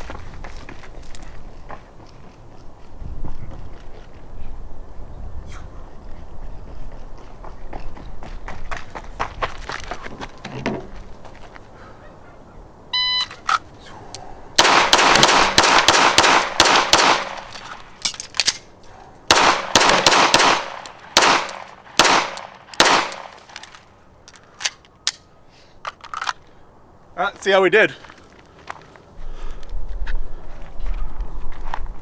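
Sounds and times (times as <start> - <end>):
electronic timer beep: 13.0 - 13.3
pistol shots: 14.6 - 17.9, 19.3 - 23.6.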